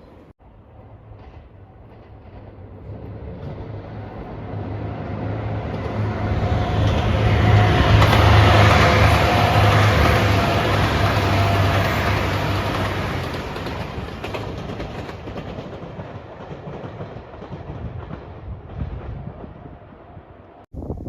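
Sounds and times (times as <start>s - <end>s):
diesel train engine hum: 0.0s - 16.0s
steady high tone: 6.1s - 13.6s.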